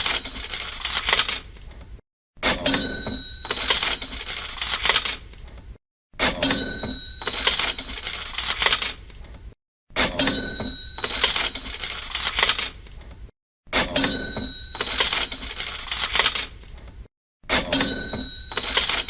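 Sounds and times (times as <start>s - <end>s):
coins clattering: 0.0s - 1.6s, 3.4s - 5.4s, 7.2s - 9.1s, 10.9s - 12.9s, 14.1s - 16.7s, 17.8s - 19.0s
cash register bell ding: 2.4s - 4.8s, 6.3s - 8.7s, 10.0s - 12.6s, 13.8s - 16.4s, 17.5s - 19.0s.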